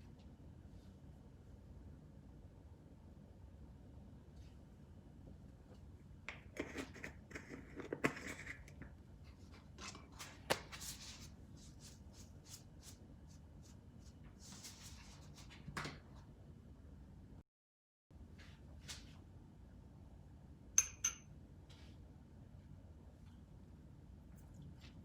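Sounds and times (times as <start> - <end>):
clicks and taps of utensils: 20.8 - 21.3.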